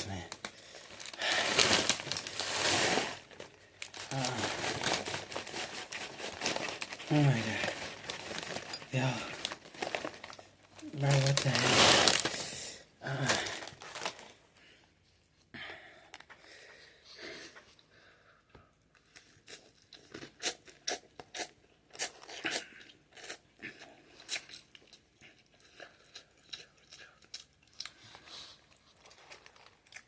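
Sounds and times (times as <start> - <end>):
chewing noodles: 18.9 - 30.0.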